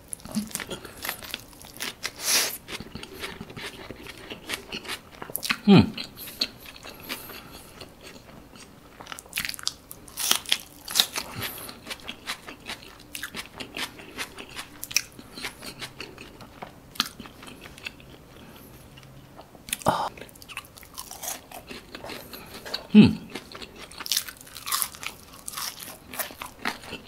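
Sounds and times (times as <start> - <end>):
person chewing food: 0.1 - 27.0.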